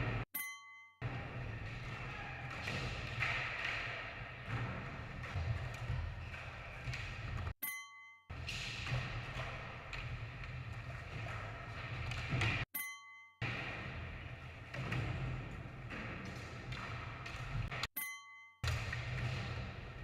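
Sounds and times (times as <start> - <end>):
short bell-like ding: 0.3 - 1.0, 7.6 - 8.3, 12.7 - 13.4, 18.0 - 18.6.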